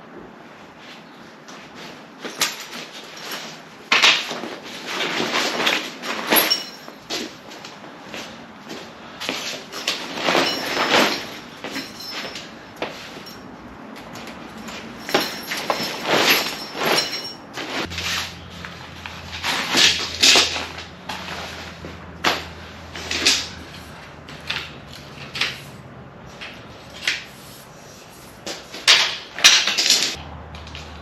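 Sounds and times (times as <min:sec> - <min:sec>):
canvas and packaging rustling: 0:01.6 - 0:13.4, 0:14.2 - 0:25.6.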